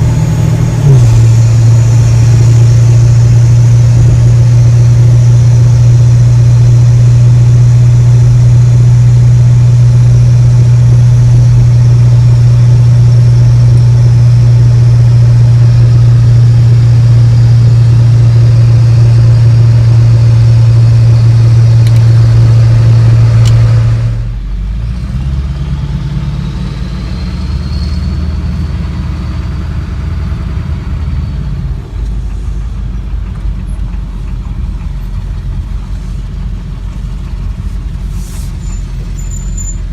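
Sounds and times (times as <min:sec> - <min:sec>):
diesel engine drone in cab: 0:00.0 - 0:39.9
faint high turbo whistle: 0:26.4 - 0:29.4, 0:38.1 - 0:39.9.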